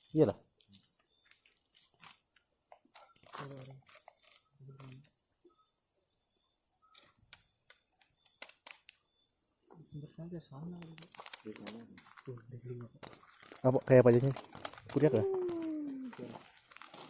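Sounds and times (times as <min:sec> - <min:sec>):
night insects chorus: 0:00.0 - 0:17.0
small clicks and rustles: 0:01.0 - 0:05.1, 0:06.9 - 0:09.1, 0:10.5 - 0:17.0
low voice sounds: 0:15.0 - 0:16.4.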